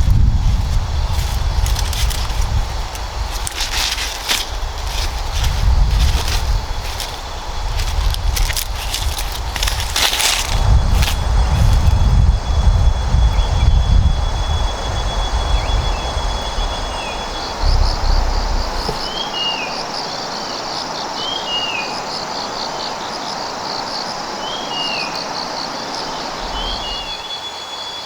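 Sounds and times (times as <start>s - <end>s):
steady hiss: 0.0s - 13.2s
low rumbles: 0.0s - 19.4s
fast pulsed chirping: 0.0s - 19.6s.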